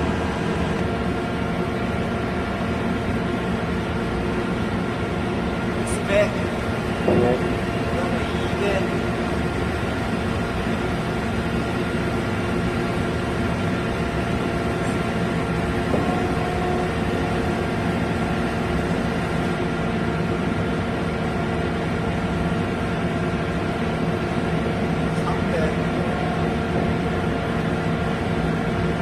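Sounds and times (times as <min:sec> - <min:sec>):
machine humming: 0:00.0 - 0:20.8.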